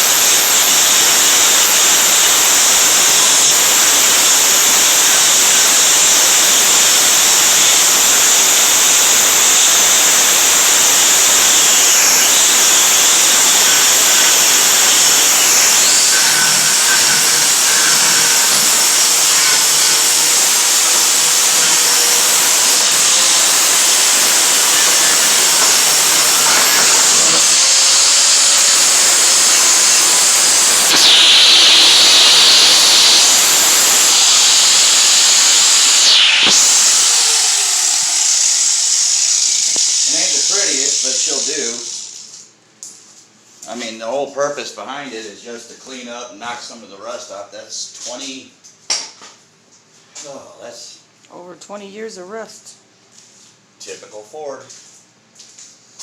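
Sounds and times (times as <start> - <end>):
power grinder grinding steel: 0.0 - 42.3.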